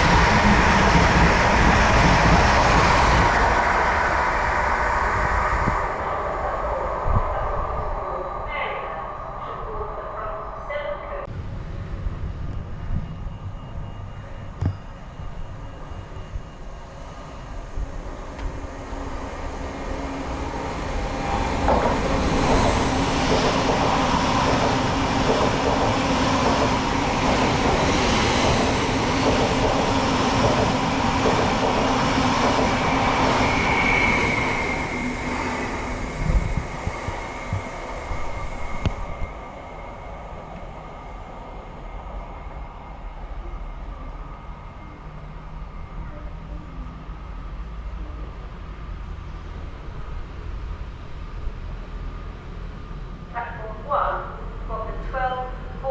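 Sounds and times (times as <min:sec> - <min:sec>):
train passing with low hum: 0:00.0 - 0:55.9
train wheels rolling: 0:12.2 - 0:41.4
train knocks: 0:14.5 - 0:15.0, 0:21.6 - 0:35.2
high wheel squeal: 0:32.8 - 0:39.5.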